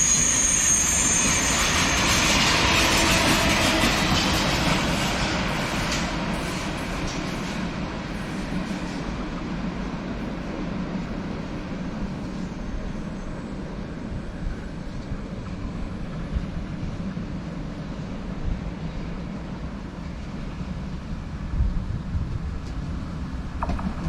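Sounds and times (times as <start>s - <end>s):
train rumbling past: 0.0s - 24.0s.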